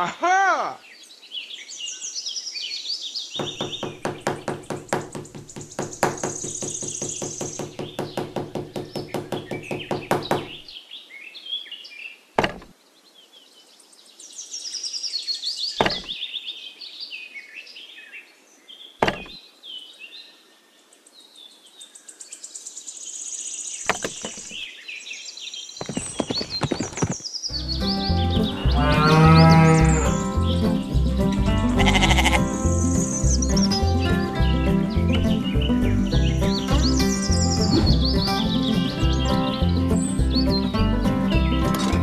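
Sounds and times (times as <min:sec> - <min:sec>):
birds chirping and twittering: 0:00.7 - 0:42.0
fast run of knocks: 0:03.4 - 0:10.6, 0:25.8 - 0:27.2
sharp single knocks: 0:03.4 - 0:10.6, 0:12.4 - 0:12.8, 0:15.8 - 0:16.2, 0:19.0 - 0:19.4, 0:23.9 - 0:24.6.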